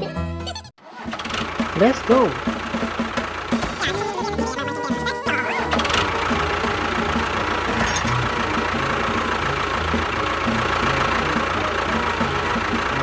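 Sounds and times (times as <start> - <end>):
small motor humming: 5.3 - 13.0.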